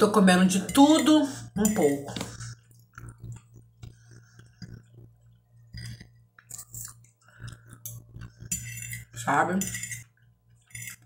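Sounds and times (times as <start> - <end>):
steady low hum: 0.0 - 11.0
mouth chewing food: 2.3 - 8.5.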